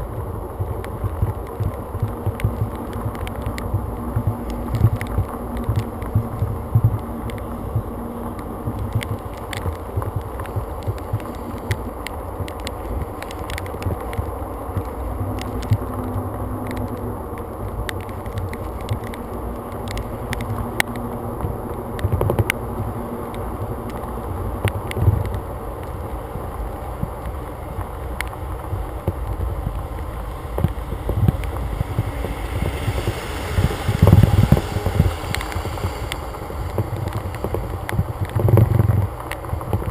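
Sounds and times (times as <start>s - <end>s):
wind buffeting microphone: 0.0s - 39.9s
sharp ticks: 27.8s - 39.9s.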